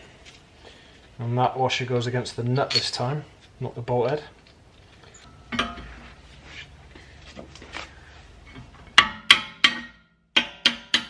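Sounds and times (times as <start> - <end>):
metal tools clinking: 2.6 - 3.2, 5.0 - 5.7.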